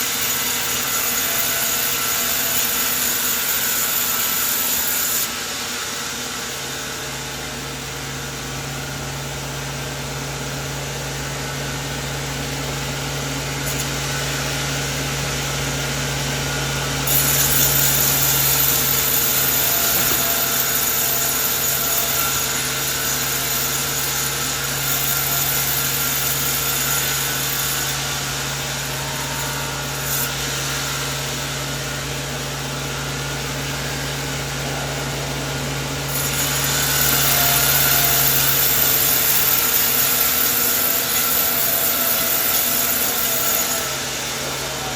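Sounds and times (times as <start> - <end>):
sawmill saw cutting wood: 0.0 - 7.4, 11.2 - 44.9
motor humming: 11.0 - 44.9.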